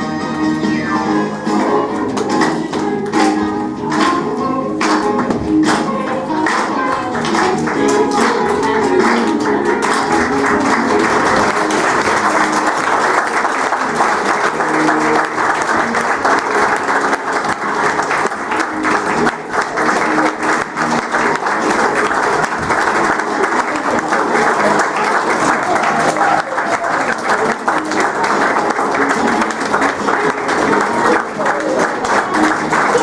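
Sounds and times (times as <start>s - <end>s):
music playing: 0.0s - 33.0s
audience applauding: 4.8s - 33.0s.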